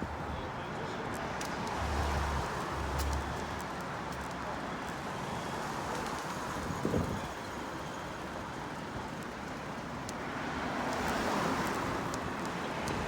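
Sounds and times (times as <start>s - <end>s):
road noise: 0.0s - 13.0s
wind buffeting microphone: 6.4s - 8.3s.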